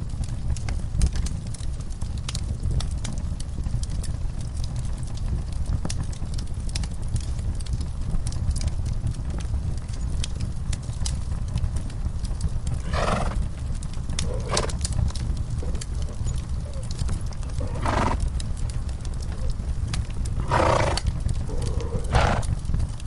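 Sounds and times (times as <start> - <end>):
wood fire crackling and popping: 0.0 - 23.0
horse calling: 17.5 - 18.2, 20.4 - 22.5.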